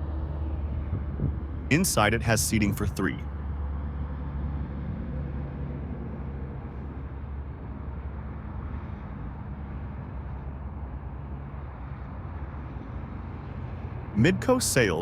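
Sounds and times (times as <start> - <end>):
diesel engine idling: 14.2 - 15.0.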